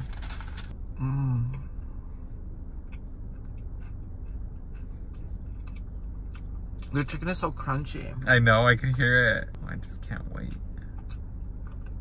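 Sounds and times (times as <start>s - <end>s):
low steady hum: 0.0s - 12.0s
person humming mm: 1.0s - 1.7s
person chewing crispy food: 2.8s - 6.9s.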